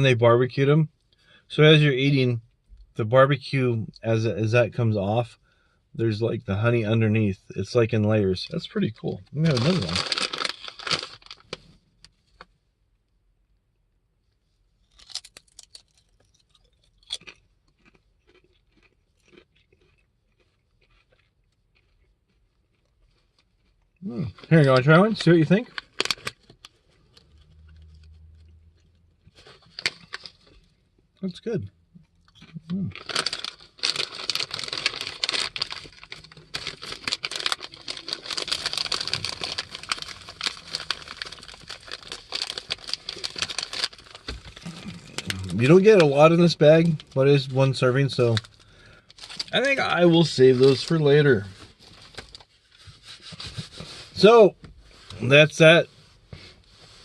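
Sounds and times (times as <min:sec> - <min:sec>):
crunching and chewing potato chip: 0:08.5 - 0:11.8, 0:14.8 - 0:31.0, 0:32.0 - 0:47.1, 0:48.0 - 0:51.3.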